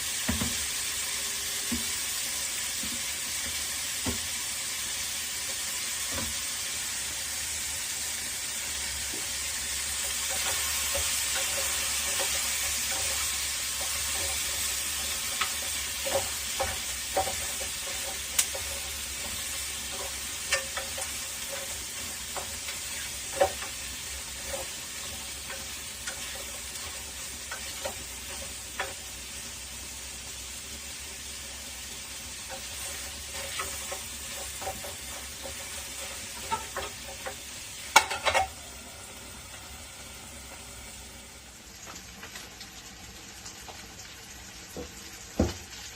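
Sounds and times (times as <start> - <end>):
food sizzling in a frying pan: 0.0 - 45.9
spatula scraping a pan: 8.8 - 29.4, 32.0 - 38.7.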